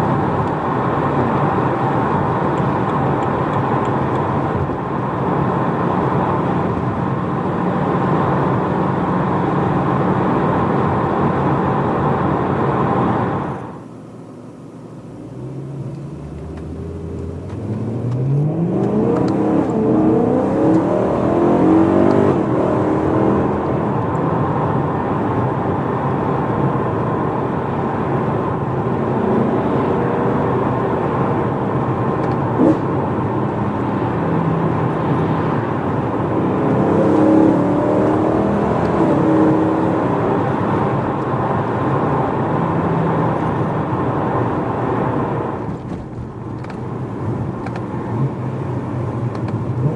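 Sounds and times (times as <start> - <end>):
car engine accelerating: 14.8 - 49.9.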